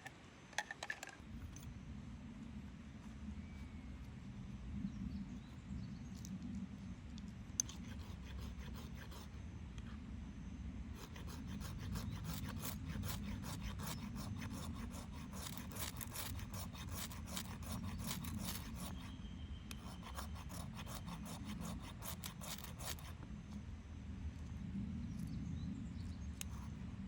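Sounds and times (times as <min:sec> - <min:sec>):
hand tool rasping wood: 0:11.0 - 0:19.1, 0:19.8 - 0:23.1.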